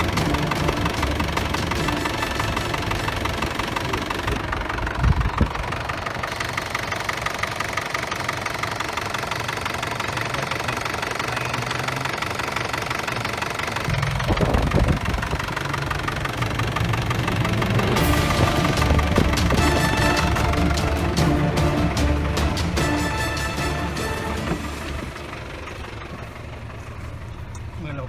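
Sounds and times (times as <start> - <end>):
pickup engine idling: 0.0 - 28.0
low thumps: 13.9 - 15.6, 17.2 - 25.2.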